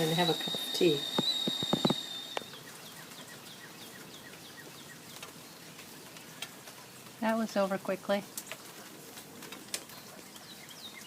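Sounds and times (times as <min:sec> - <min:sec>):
sharp clicks: 0:00.0 - 0:02.6
steady high tone: 0:00.0 - 0:02.6
bird falling chirps: 0:00.0 - 0:02.7
rain hiss: 0:00.0 - 0:11.0.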